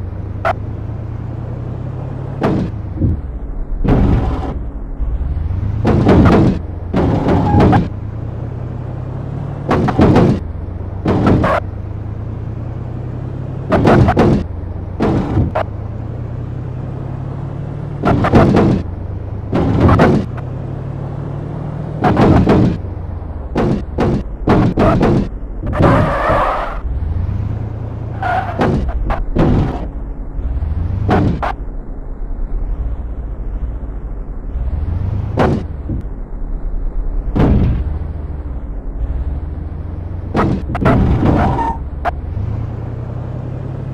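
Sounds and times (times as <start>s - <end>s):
car engine at low revs: 0.0s - 43.9s
car knocking on speed bump: 5.7s - 8.0s, 9.6s - 10.4s, 11.0s - 11.6s, 22.0s - 26.0s.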